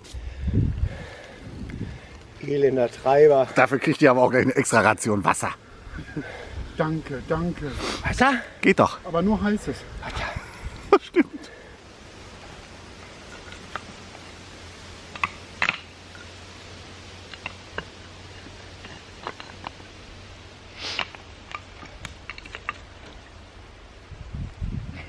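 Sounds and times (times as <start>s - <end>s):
small clicks and knocks: 15.1s - 16.3s, 17.3s - 19.8s, 21.0s - 23.3s.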